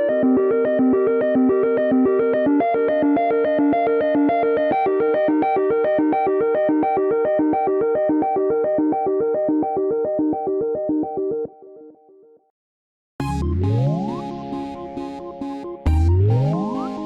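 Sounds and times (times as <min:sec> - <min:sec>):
phone ringtone synth melody: 0:13.2 - 0:17.0.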